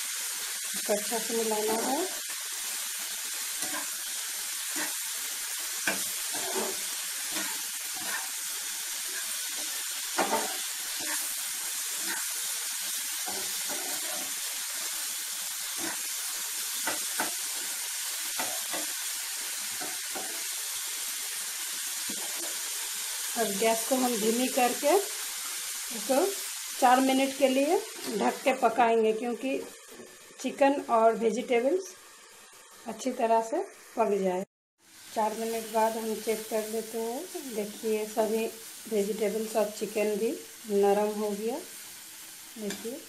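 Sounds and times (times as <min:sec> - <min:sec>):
food sizzling in a frying pan: 0:00.0 - 0:43.0
spatula scraping a pan: 0:03.4 - 0:17.7.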